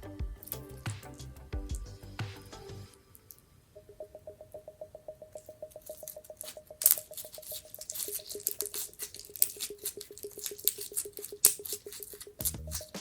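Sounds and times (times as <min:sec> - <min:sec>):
soft pulsing background music: 0:00.0 - 0:13.0.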